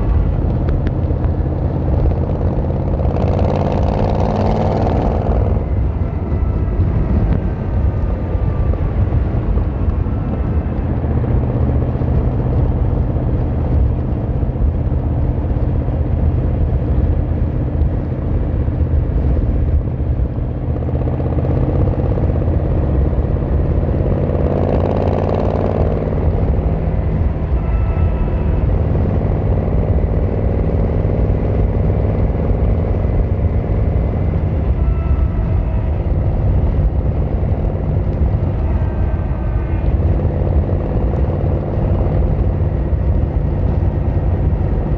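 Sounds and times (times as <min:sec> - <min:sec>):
motorcycle engine droning: 0:00.0 - 0:44.9
sound rising in pitch: 0:02.4 - 0:12.0.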